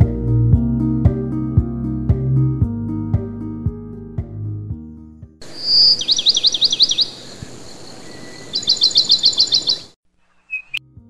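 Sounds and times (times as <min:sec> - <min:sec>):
songbird singing: 0:05.4 - 0:10.8
steady background hiss: 0:05.4 - 0:10.8.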